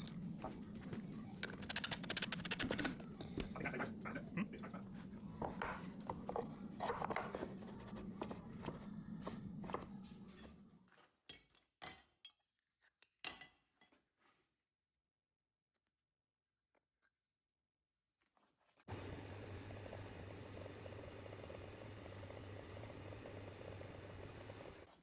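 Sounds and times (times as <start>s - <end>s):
steady low hum: 18.9s - 24.9s.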